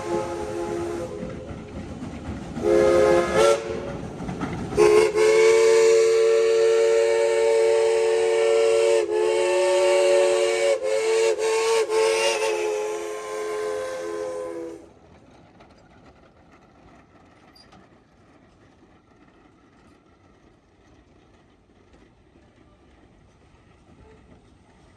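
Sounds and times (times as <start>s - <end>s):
steam locomotive chime whistle: 0.0s - 1.5s, 2.6s - 3.9s, 4.8s - 14.9s.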